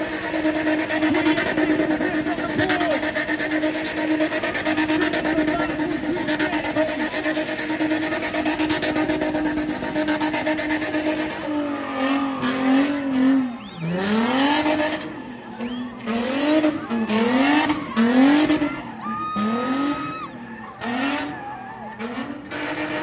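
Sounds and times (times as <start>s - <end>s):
car engine revving hard: 0.0s - 23.0s.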